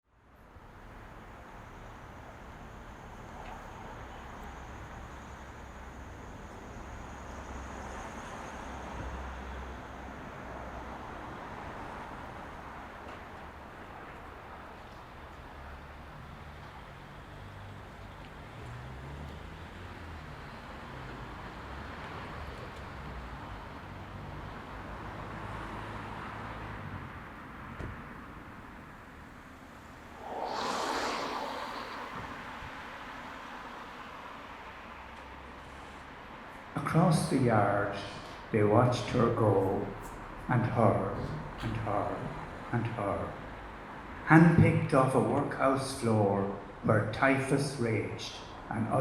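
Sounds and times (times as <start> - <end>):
road traffic rumble and hiss: 0.1 - 49.0
low rumble: 30.1 - 33.3
even hiss: 30.1 - 33.8
vehicles passing: 30.1 - 34.7.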